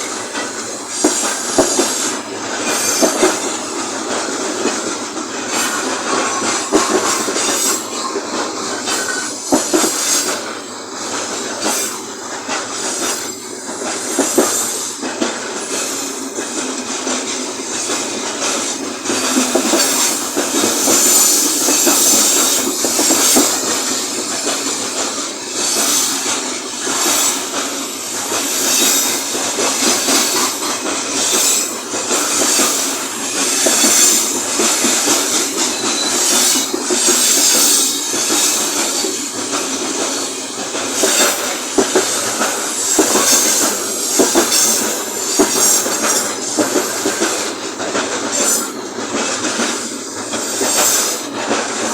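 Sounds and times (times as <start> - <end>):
train wagons rumbling past: 0.0 - 51.9
wheels clacking over rail joints: 0.0 - 51.9.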